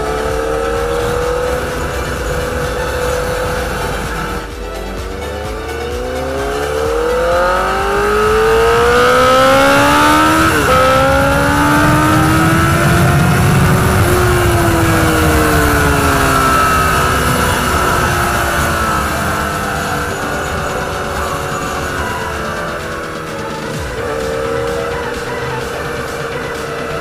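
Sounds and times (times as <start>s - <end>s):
motorcycle engine accelerating: 0.0s - 27.0s
wind rush: 7.2s - 27.0s.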